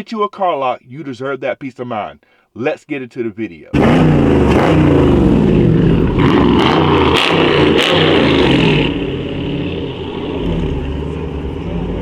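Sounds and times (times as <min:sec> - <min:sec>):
car engine revving: 0:03.8 - 0:12.0.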